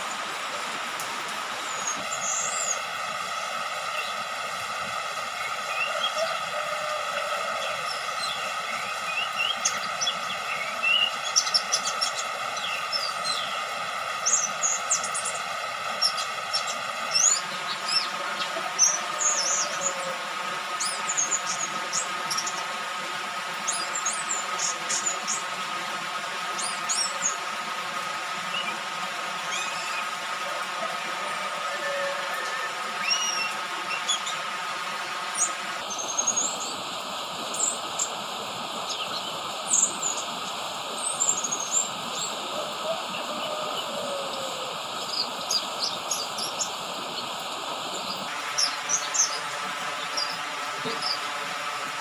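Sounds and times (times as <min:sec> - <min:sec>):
steady hiss: 0:00.0 - 0:52.0
bird chirping and twittering: 0:01.6 - 0:02.9, 0:05.4 - 0:15.4, 0:16.0 - 0:20.1, 0:33.0 - 0:34.4, 0:41.0 - 0:47.3, 0:47.9 - 0:51.2.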